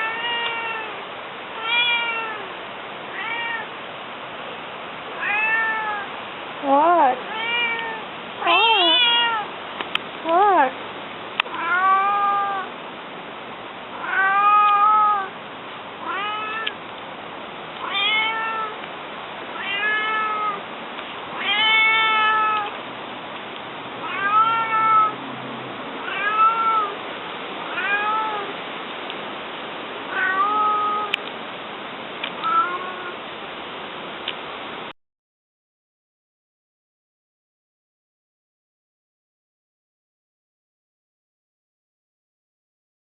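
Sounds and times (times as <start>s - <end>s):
cat meowing: 0.0s - 1.0s, 1.6s - 2.5s, 3.1s - 3.7s, 5.2s - 6.2s, 7.2s - 9.5s, 11.4s - 12.7s, 14.0s - 15.4s, 16.0s - 16.8s, 17.8s - 18.8s, 19.5s - 20.6s, 21.3s - 22.8s, 24.0s - 25.2s, 26.0s - 27.0s, 27.7s - 28.5s, 30.1s - 31.2s, 32.4s - 33.2s.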